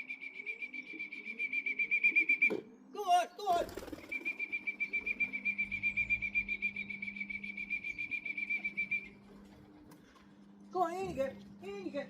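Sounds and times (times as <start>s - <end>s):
high trilling whistle: 4.2s - 9.2s.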